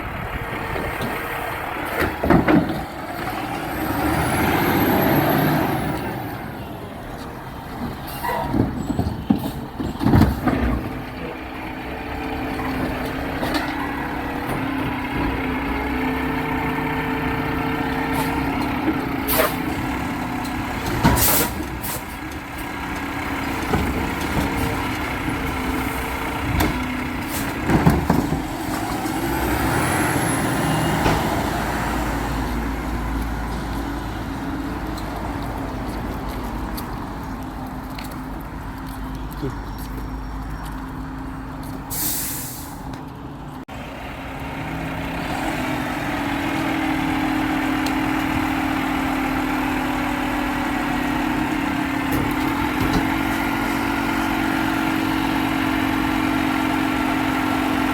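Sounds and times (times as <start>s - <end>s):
diesel engine running: 0.0s - 57.9s
air brake hiss: 41.9s - 42.9s.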